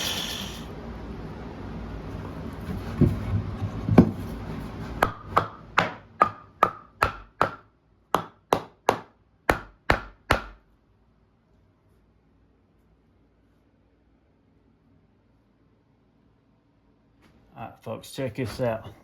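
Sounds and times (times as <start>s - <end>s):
steady hiss: 0.0s - 0.7s.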